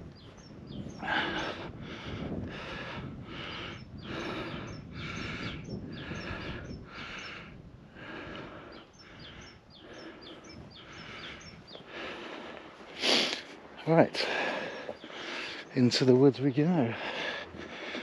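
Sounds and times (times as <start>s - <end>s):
wind rumbling on microphone: 0.0s - 12.9s
small birds chirping: 0.0s - 18.0s
walking footsteps: 10.0s - 18.0s.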